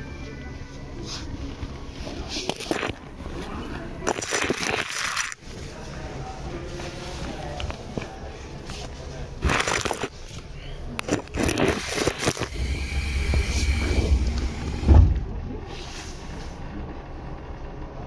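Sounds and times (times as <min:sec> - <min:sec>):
electric train running: 0:11.7 - 0:18.0
heavy low thump: 0:13.1 - 0:15.5.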